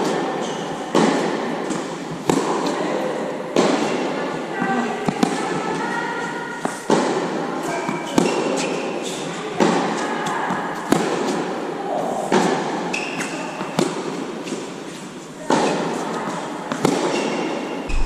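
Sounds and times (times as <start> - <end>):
tennis racket hitting ball: 0.9 - 2.8, 3.6 - 4.1, 5.0 - 5.7, 6.6 - 8.8, 9.6 - 11.6, 12.3 - 16.0, 16.7 - 18.0.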